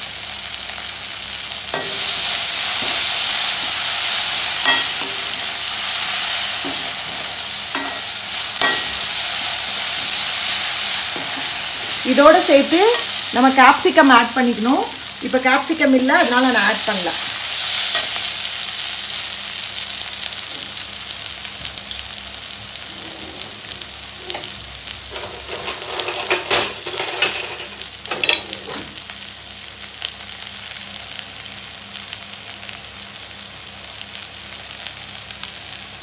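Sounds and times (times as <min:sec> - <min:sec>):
onions sizzling in hot oil: 0:00.0 - 0:26.5, 0:27.3 - 0:36.0
metal spoon scraping pan: 0:04.6 - 0:05.4, 0:07.7 - 0:09.0.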